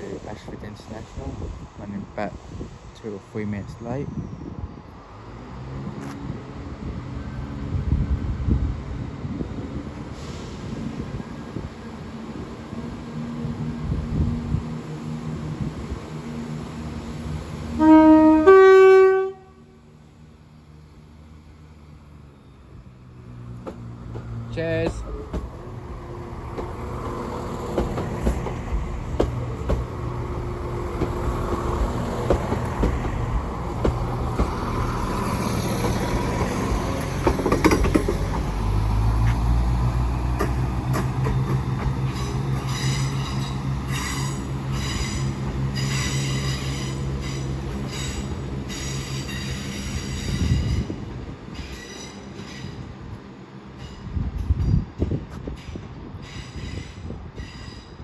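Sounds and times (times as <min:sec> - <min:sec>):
diesel train engine: 0:00.0 - 0:58.0
train wheel squeal: 0:40.9 - 0:52.9, 0:55.4 - 0:58.0.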